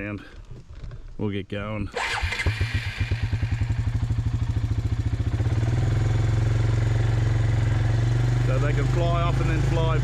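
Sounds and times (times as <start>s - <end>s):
vehicle engine running: 2.0s - 10.0s.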